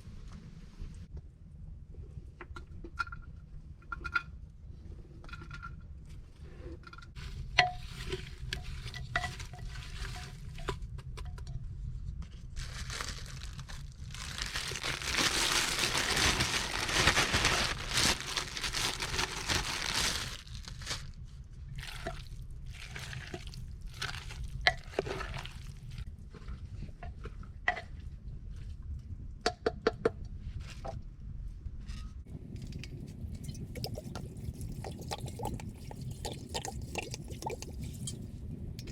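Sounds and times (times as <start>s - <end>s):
liquid pouring: 32.8s - 38.2s.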